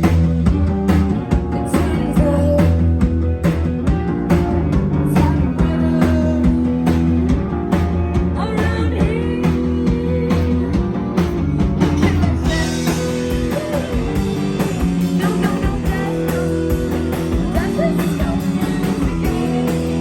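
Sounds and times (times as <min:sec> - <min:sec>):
bass guitar: 0:00.0 - 0:20.0
distorted electric guitars: 0:00.0 - 0:20.0
steady drum beat: 0:00.0 - 0:20.0
person singing: 0:01.5 - 0:03.0, 0:05.1 - 0:07.2, 0:12.0 - 0:20.0.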